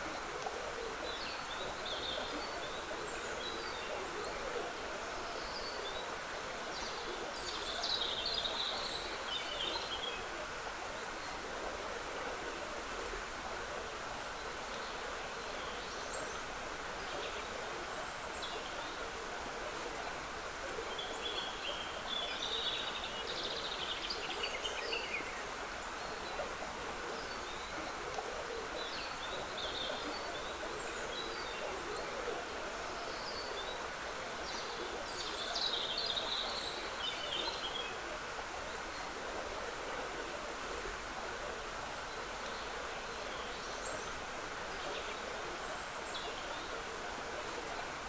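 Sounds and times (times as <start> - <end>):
songbirds chirping: 12.6 - 48.0.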